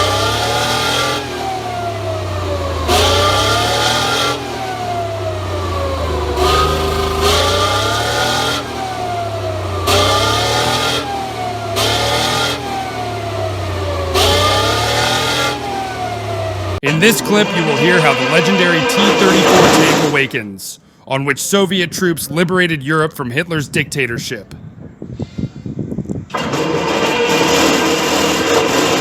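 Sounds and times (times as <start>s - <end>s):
tank diesel engine revving: 0.0s - 20.4s, 26.3s - 29.0s.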